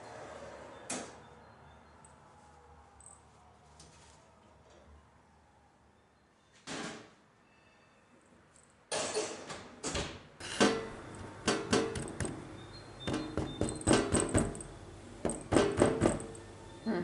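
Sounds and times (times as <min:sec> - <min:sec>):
kitchen knocks and clacks: 0:10.6 - 0:12.4, 0:13.0 - 0:14.6, 0:15.2 - 0:16.3.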